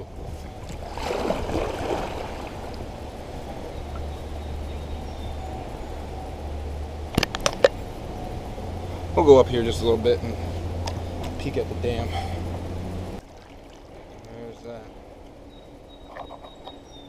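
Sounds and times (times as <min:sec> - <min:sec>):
low steady hum: 0:00.0 - 0:17.0
river water rushing: 0:00.7 - 0:14.2.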